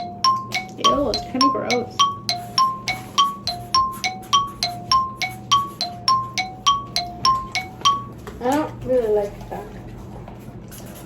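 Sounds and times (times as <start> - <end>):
mallet percussion loop: 0.0 - 8.2.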